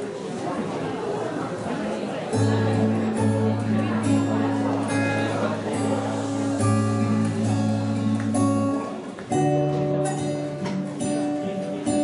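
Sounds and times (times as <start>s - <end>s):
acoustic guitar strumming chords: 2.3s - 12.0s.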